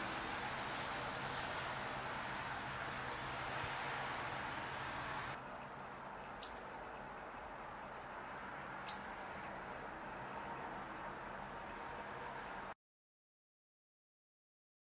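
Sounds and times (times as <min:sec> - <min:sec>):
songbirds chip calls: 0:04.8 - 0:09.6.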